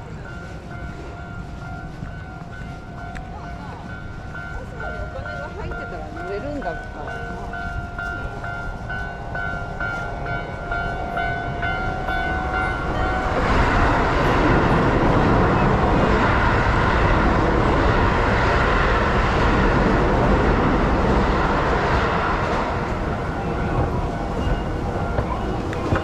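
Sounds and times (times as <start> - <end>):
level crossing bell ringing: 0.0 - 15.0
train passing: 0.0 - 26.0.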